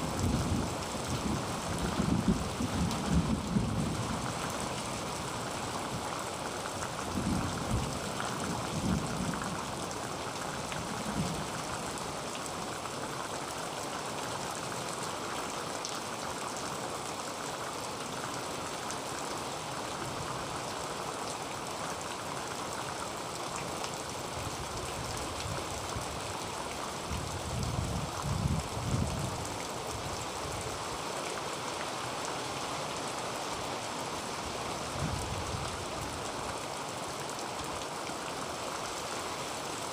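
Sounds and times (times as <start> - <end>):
heavy rain on a tin roof: 0.0 - 39.9.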